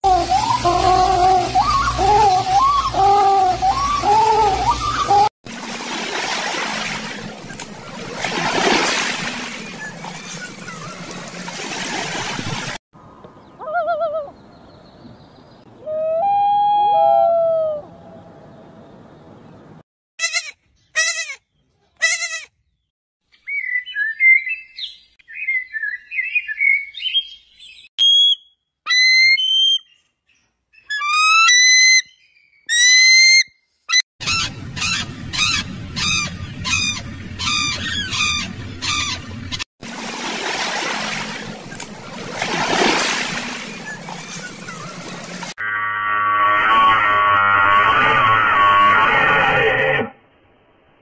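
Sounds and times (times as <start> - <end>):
eagle piping calls: 34.2 - 39.2.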